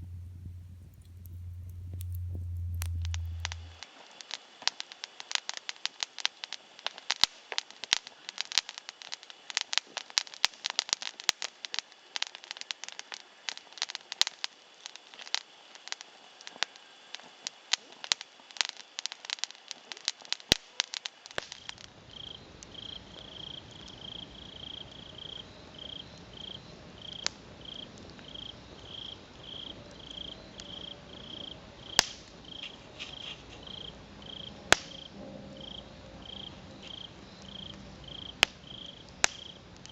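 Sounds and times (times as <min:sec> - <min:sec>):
insect chirping: 0:00.0 - 0:04.0, 0:21.0 - 0:39.9
wood fire crackling and popping: 0:00.0 - 0:39.9.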